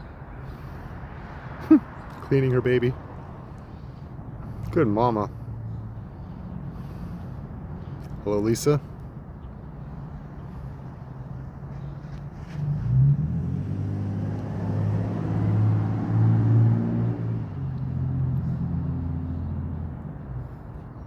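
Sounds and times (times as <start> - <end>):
vehicle driving past: 9.6 - 20.7.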